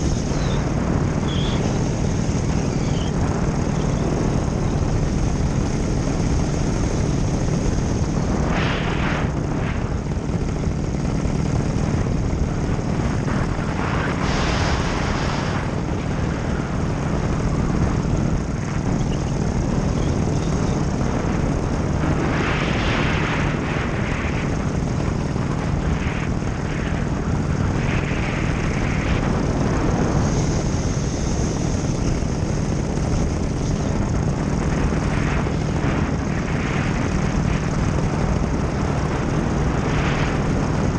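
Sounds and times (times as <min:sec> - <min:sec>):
paramotor engine and propeller running: 0:00.0 - 0:40.9
wind rushing over microphone: 0:00.0 - 0:40.9.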